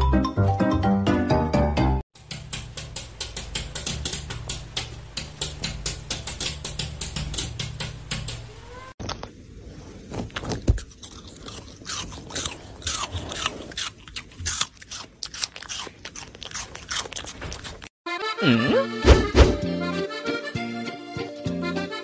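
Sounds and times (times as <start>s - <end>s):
puppy chewing crunches: 10.0s - 17.9s.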